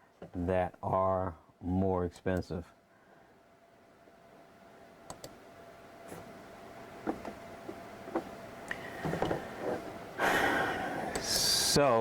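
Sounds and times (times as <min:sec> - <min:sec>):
computer mouse clicks: 0:05.1 - 0:05.4.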